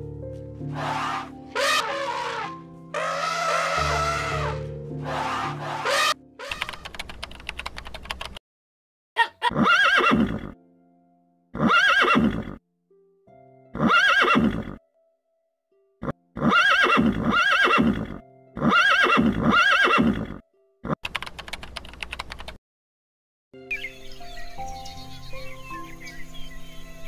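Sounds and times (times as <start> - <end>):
horse whinnying: 0.7 - 6.9, 9.5 - 10.6, 11.6 - 12.6, 13.8 - 14.8, 16.4 - 20.4
rapid clicking: 6.5 - 8.4, 21.0 - 22.6.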